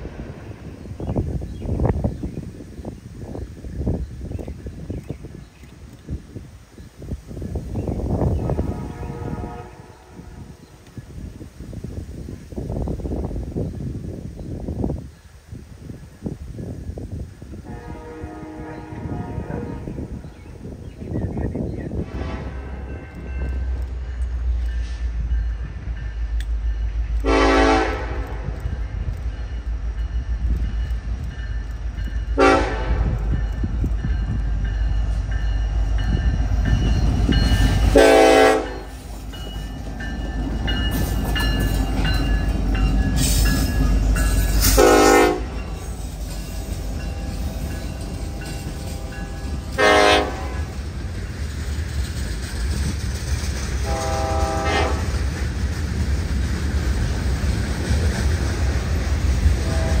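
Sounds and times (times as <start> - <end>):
freight train rumbling: 0.0 - 60.0
train horn blasts: 8.4 - 10.6, 17.6 - 20.2, 22.0 - 23.8, 27.2 - 28.8, 32.4 - 33.4, 37.6 - 39.0, 44.5 - 50.8, 53.8 - 55.2, 59.6 - 60.0.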